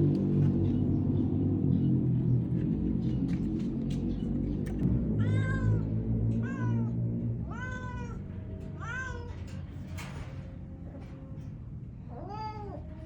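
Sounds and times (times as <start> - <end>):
cat meowing: 5.2 - 9.4.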